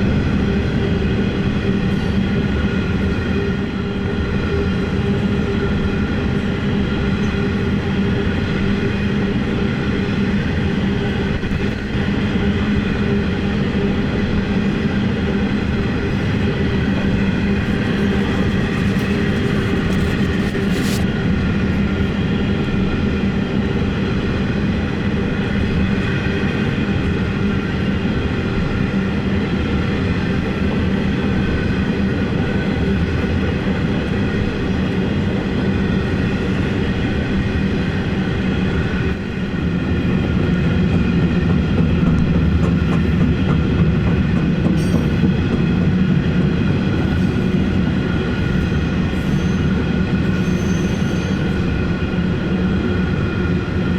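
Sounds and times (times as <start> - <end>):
train rolling past: 0.1 - 22.9, 25.0 - 53.9.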